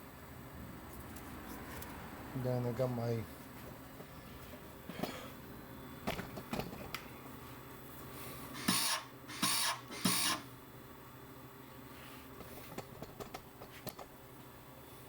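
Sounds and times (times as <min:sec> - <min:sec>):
welder wire feed buzzing: 0:08.5 - 0:10.5.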